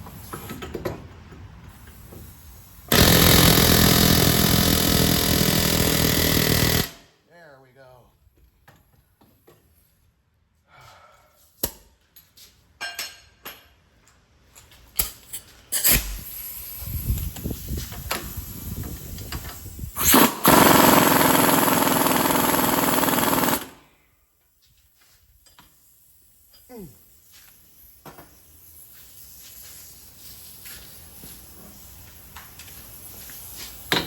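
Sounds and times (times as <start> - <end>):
power tool hammering: 2.9 - 7.0, 20.0 - 23.8.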